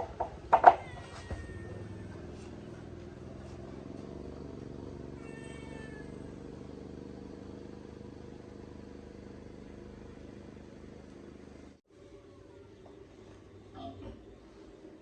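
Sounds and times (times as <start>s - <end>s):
cat meowing: 0.7s - 2.4s, 5.1s - 6.3s.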